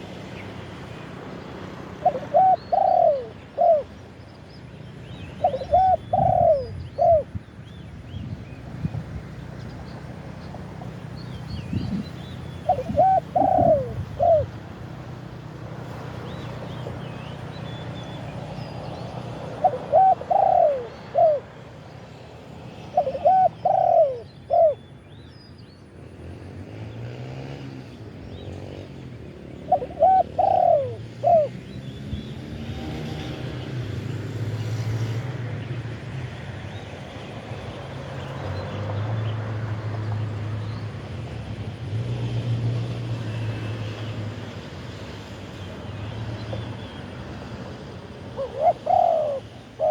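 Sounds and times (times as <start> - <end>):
dove cooing: 1.9 - 4.0, 5.4 - 7.4, 11.8 - 14.6, 19.4 - 21.6, 22.8 - 24.8, 29.7 - 31.7, 48.2 - 49.9.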